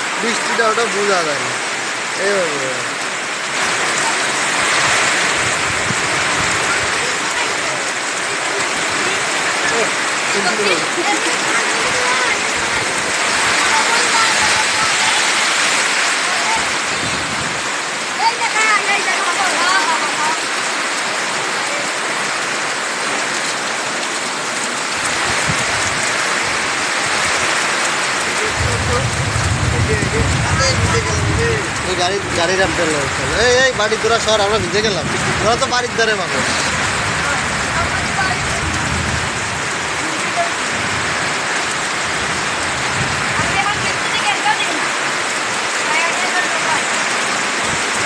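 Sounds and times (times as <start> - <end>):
heavy rain pouring: 0.0 - 48.0
low rumble: 28.4 - 31.9.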